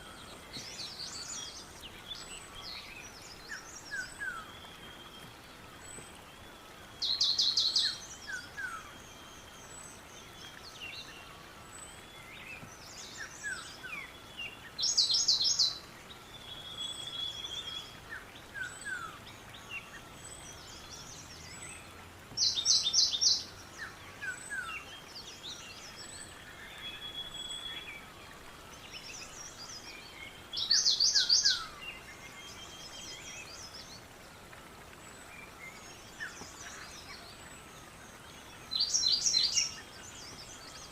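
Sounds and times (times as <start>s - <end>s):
steady background hiss: 0.0s - 40.9s
birds chirping and whistling: 29.2s - 33.9s, 38.7s - 40.9s.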